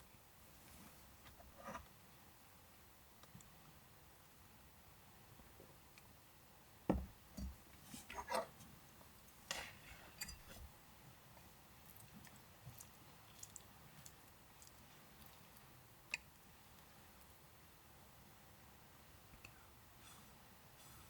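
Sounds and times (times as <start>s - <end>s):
soft knocks: 6.9s - 7.6s.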